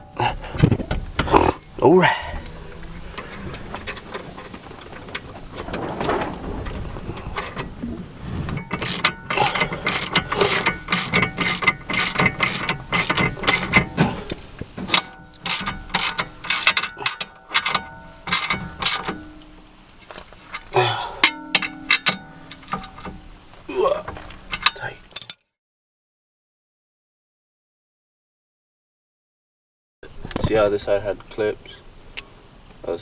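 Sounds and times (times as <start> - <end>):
ratchet wrench clicking: 8.7 - 14.0, 14.9 - 19.2.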